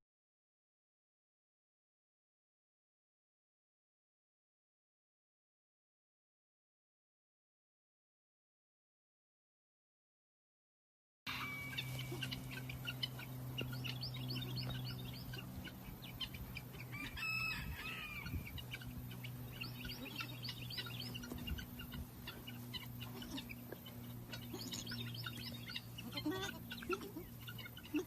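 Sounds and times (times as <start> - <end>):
birds chirping: 11.3 - 28.0
steady low hum: 11.3 - 28.0.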